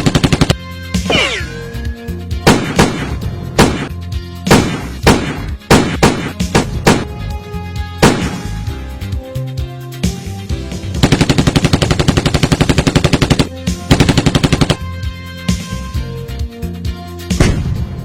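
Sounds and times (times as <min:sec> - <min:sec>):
machine-gun fire: 0:00.0 - 0:01.6, 0:02.4 - 0:03.9, 0:04.5 - 0:07.1, 0:08.0 - 0:08.5, 0:11.0 - 0:14.8
background music: 0:00.0 - 0:18.0.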